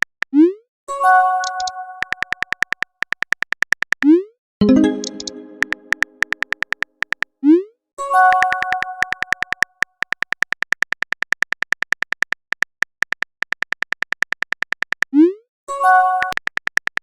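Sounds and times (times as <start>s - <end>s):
keyboard typing clicks: 1.4s - 7.3s, 8.3s - 15.1s, 16.2s - 17.0s
multi-tone chime: 4.6s - 6.2s.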